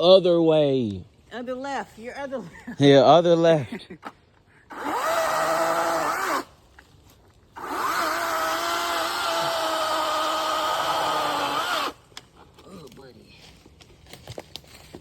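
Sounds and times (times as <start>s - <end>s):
chainsaw at full throttle: 4.7s - 6.5s, 7.6s - 12.0s.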